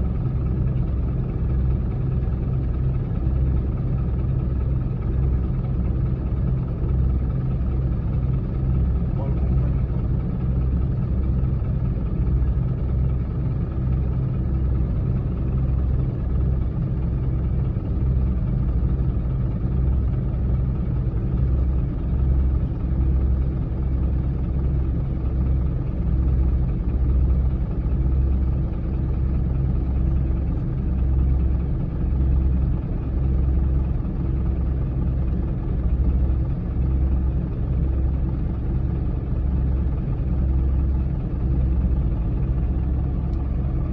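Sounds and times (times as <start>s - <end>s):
bulldozer diesel engine rumbling: 39.5s - 43.9s.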